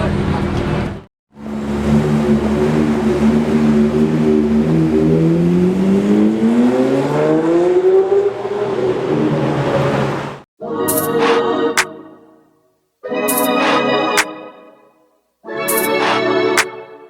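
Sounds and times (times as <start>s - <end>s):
sports car engine revving: 1.4s - 10.4s.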